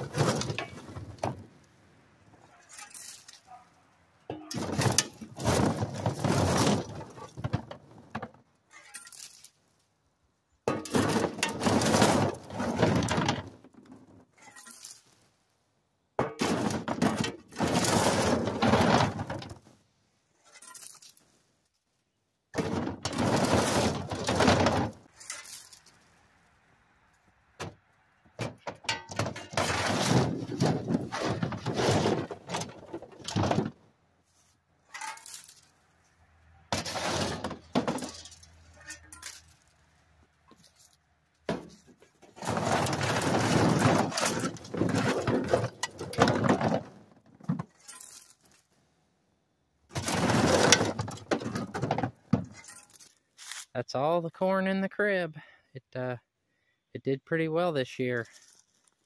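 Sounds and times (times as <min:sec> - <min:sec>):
dry corn ears clattering: 0:00.0 - 0:01.7, 0:02.3 - 0:03.6, 0:04.2 - 0:09.9, 0:10.7 - 0:15.3, 0:16.2 - 0:19.8, 0:20.4 - 0:21.8, 0:22.6 - 0:26.1, 0:28.4 - 0:36.1, 0:36.7 - 0:48.7, 0:49.9 - 0:53.8, 0:57.6 - 0:59.0.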